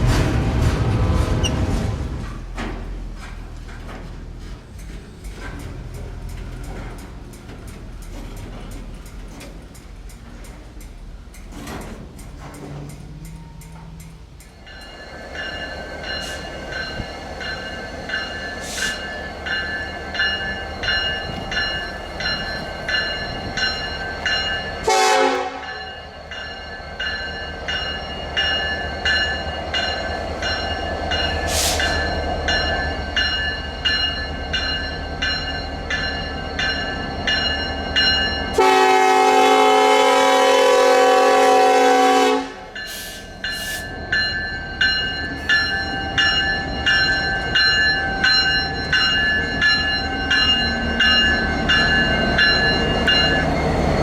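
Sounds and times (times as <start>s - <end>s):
diesel locomotive rumbling: 0.0s - 54.0s
bell ringing: 14.6s - 24.9s, 42.8s - 54.0s
train horn blast: 24.8s - 25.8s, 38.6s - 42.8s.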